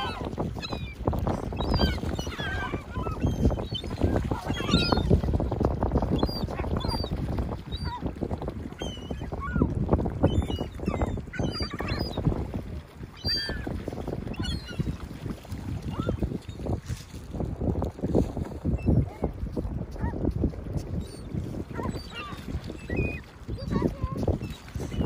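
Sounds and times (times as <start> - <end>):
gulls calling: 0.0 - 5.4, 6.0 - 15.1, 21.0 - 25.0
wind buffeting microphone: 0.0 - 25.0.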